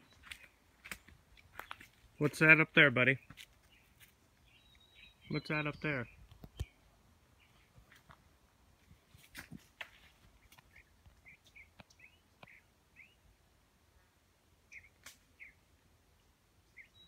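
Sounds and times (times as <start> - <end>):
faint bird chirps: 3.2 - 7.7, 14.0 - 15.6, 16.2 - 17.0.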